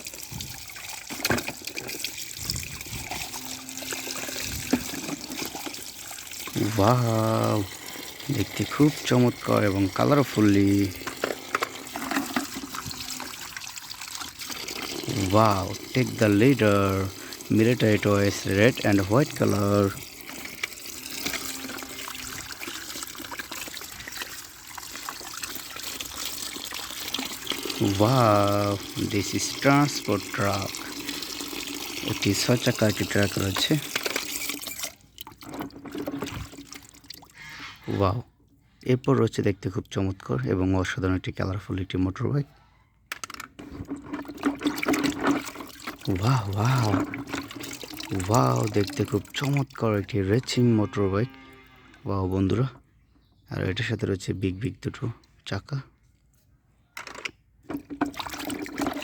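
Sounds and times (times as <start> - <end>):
water trickling and splashing: 0.0 - 38.2, 43.6 - 52.0, 57.7 - 59.0.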